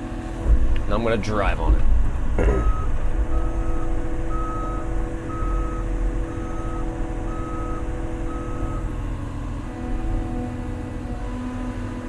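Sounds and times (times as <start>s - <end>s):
diesel engine rumble: 0.0s - 12.0s
excavator travel alarm beeping: 2.4s - 10.8s.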